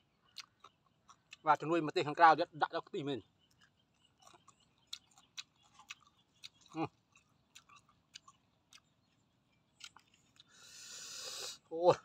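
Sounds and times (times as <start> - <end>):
chewing and mouth clicks: 0.2 - 1.7, 3.3 - 10.6.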